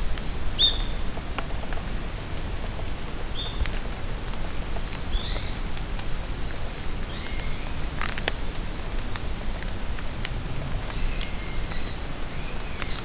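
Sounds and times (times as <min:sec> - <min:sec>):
rain falling in a forest: 0:00.0 - 0:13.0
small birds chirping: 0:10.8 - 0:13.0.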